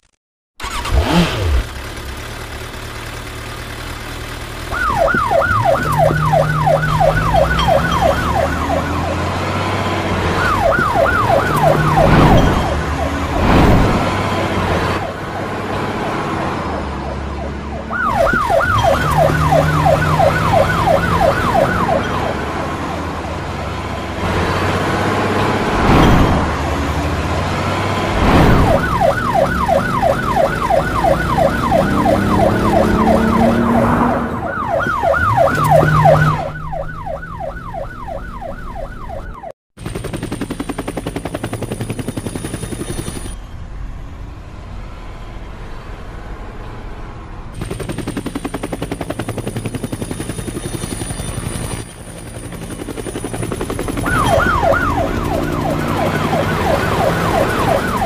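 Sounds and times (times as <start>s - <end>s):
helicopter rotor beating: 0.6s - 39.2s, 39.8s - 43.4s, 47.5s - 58.0s
warbling siren: 4.7s - 39.6s, 49.8s - 58.0s.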